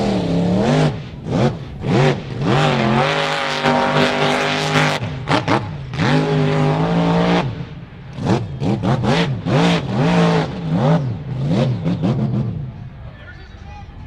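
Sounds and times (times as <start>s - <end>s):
truck engine revving: 0.0s - 12.8s.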